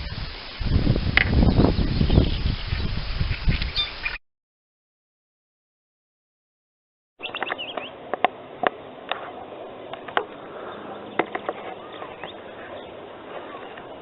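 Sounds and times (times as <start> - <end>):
short bird chirps: 1.6 - 4.2.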